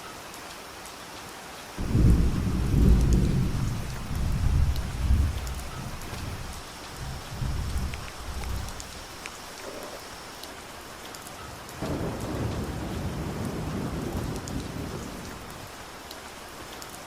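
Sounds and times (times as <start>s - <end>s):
rain falling: 0.0s - 17.0s
thunder rumble: 1.8s - 9.2s, 11.8s - 15.8s
drops ticking on surfaces: 4.1s - 9.4s.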